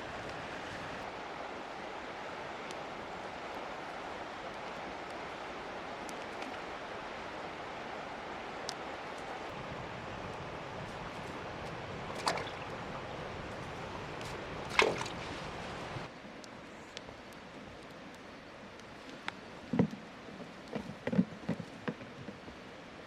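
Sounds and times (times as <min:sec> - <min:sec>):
rushing water: 0:00.0 - 0:23.0
water splashes: 0:08.5 - 0:16.1.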